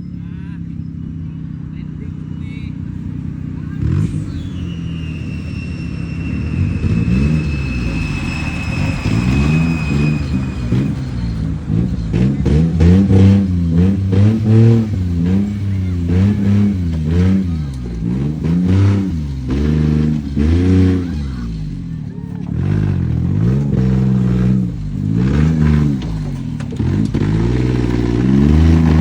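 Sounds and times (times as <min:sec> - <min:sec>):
small truck engine revving: 0:00.0 - 0:29.0
faint high whine: 0:03.6 - 0:11.6.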